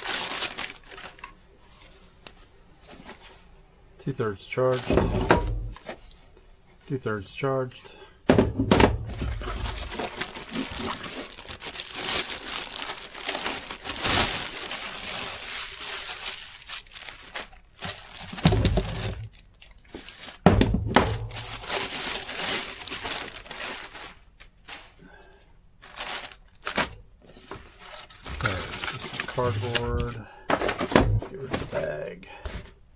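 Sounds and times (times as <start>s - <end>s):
plastic and cardboard crinkling: 0.0s - 3.6s, 8.5s - 25.1s, 25.8s - 32.8s
dull thumps: 8.3s - 11.4s, 20.4s - 21.6s.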